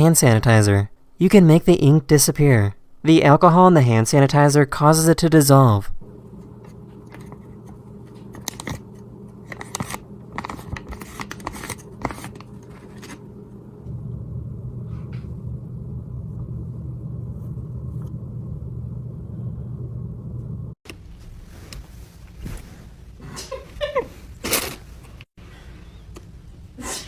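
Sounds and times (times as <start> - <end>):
low background hum: 0.0 - 27.0
louder low hum: 5.9 - 22.3.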